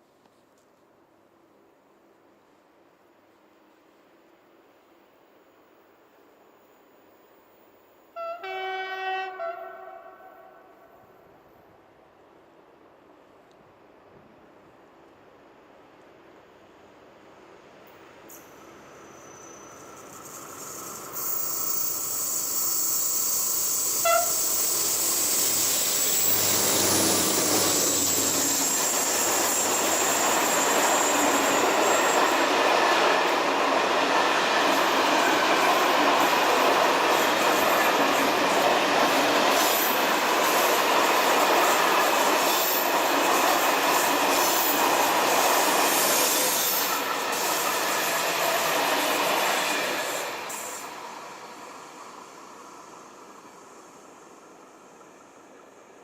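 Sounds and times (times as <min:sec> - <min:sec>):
diesel locomotive engines: 0:14.5 - 0:56.0
wheel squeal: 0:18.3 - 0:32.4.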